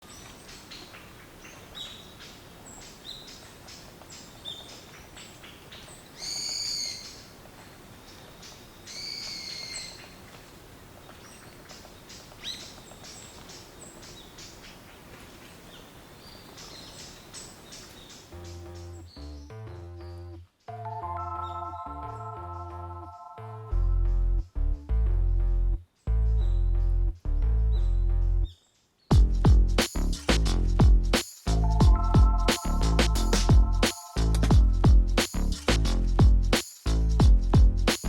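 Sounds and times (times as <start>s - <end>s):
loud bird calls: 0.0s - 18.9s
birds chirping: 0.0s - 23.4s, 31.6s - 34.9s.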